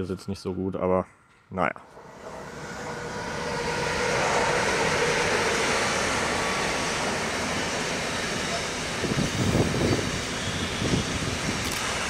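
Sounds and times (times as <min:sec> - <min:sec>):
freight train passing: 0:00.0 - 0:12.0.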